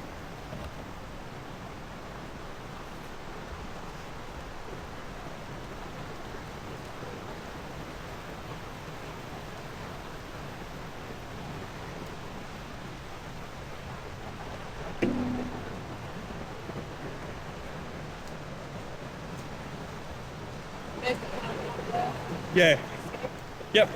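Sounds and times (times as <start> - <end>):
brief knock: 15.0 - 16.0
rushing water of falls: 19.4 - 23.9.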